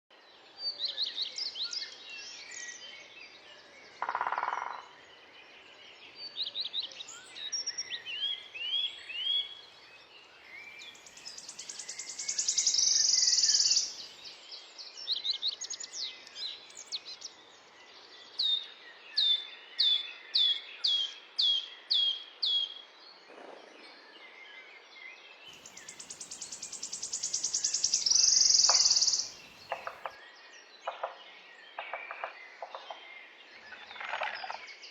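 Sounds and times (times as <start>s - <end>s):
birds chirping and trilling: 10.6s - 14.2s, 25.6s - 30.2s.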